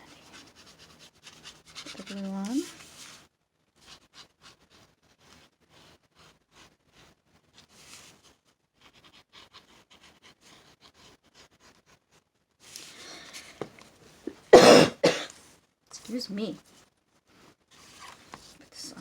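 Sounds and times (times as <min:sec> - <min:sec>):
glue rubbing on paper: 0:00.0 - 0:13.6.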